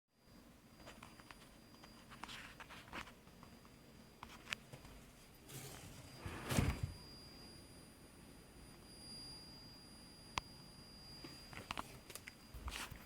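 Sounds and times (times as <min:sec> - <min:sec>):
high-pitched electronic whine: 0:05.2 - 0:13.0.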